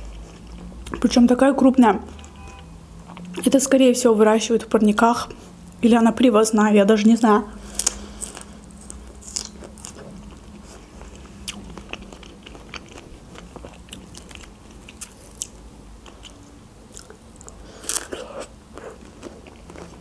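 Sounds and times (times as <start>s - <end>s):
person chewing strawberry: 0.0s - 1.1s, 2.1s - 3.6s, 7.6s - 20.0s.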